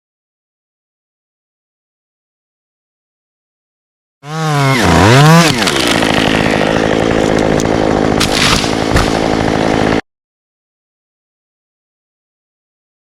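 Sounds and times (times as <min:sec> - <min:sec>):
chainsaw revving and cutting wood: 0:04.2 - 0:10.1.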